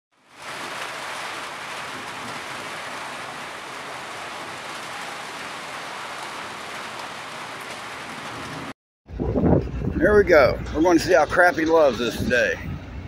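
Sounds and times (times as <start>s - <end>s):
steady rain falling: 0.1s - 8.8s.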